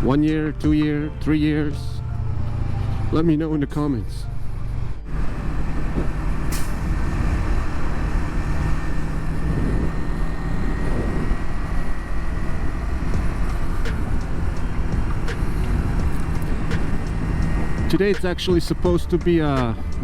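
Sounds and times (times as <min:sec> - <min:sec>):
motorcycle engine running: 0:04.4 - 0:20.0
wind noise: 0:04.7 - 0:20.0.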